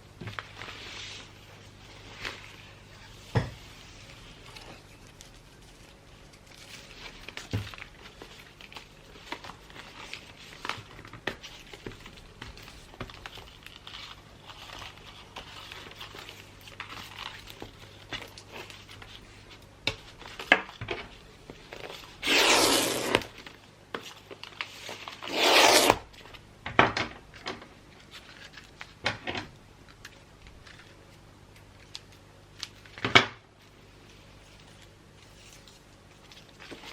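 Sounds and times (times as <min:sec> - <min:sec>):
paper rustling: 0:00.2 - 0:26.4
paper tearing: 0:22.2 - 0:23.3, 0:25.0 - 0:26.1.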